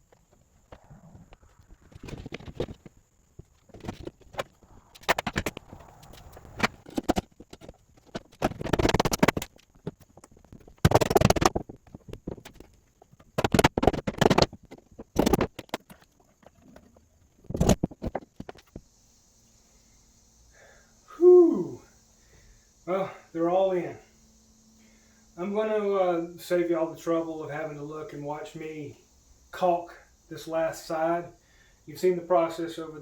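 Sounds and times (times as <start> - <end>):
rapid knocking on plywood: 10.7 - 15.8.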